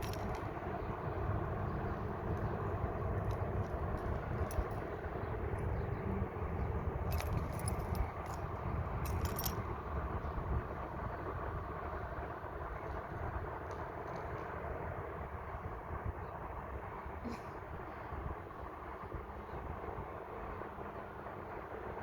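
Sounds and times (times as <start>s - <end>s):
light metallic jingling clicks: 0.0s - 0.8s, 2.2s - 9.8s
low rumble of traffic: 0.0s - 22.0s.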